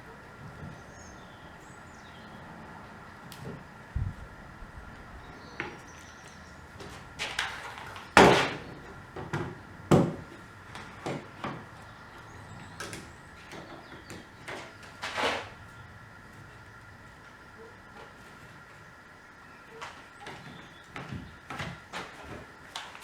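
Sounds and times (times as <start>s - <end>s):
wood scraping: 12.9s - 15.7s.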